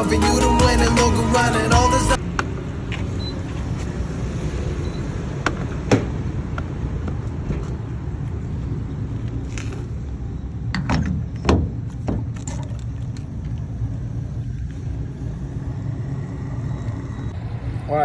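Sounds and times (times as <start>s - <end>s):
truck engine rumbling: 0.0s - 2.2s.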